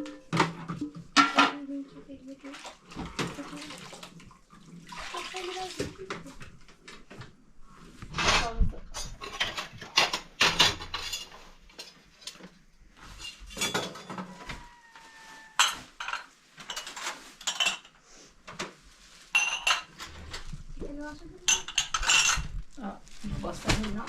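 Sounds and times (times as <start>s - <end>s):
spoons and dishes clinking: 15.5s - 18.0s, 19.3s - 20.1s, 21.5s - 22.6s.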